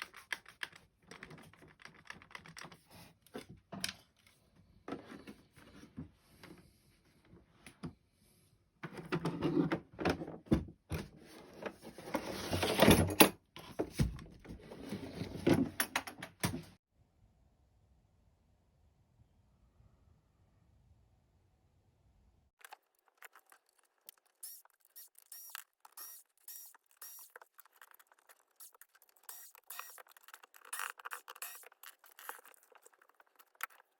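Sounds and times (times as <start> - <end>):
clicks knocks and rattles of tools: 15.5 - 16.8.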